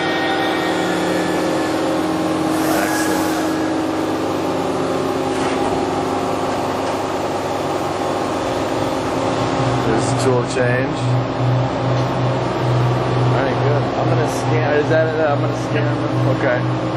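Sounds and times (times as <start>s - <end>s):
machining center hum and whine: 0.0s - 16.9s
short hisses: 2.5s - 4.1s.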